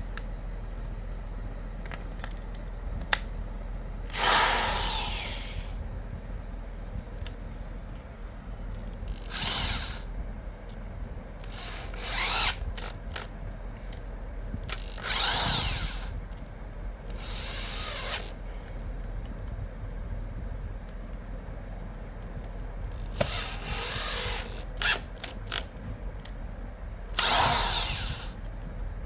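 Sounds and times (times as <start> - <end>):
power screwdriver drill running: 4.1 - 5.8, 9.1 - 10.1, 11.4 - 13.3, 14.7 - 16.2, 17.1 - 18.4, 22.9 - 25.6, 27.1 - 28.4.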